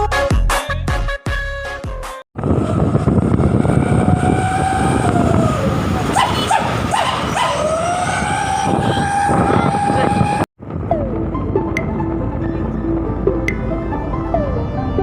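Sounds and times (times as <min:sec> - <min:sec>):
truck horn long tone: 0:02.4 - 0:06.9
truck engine rumble: 0:02.4 - 0:15.0
dog-like yelps from horn: 0:06.1 - 0:07.9.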